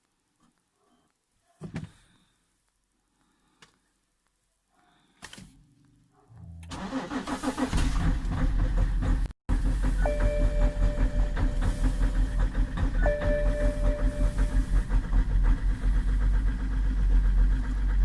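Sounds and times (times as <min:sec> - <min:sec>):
car engine starting and idling: 0:05.6 - 0:18.0.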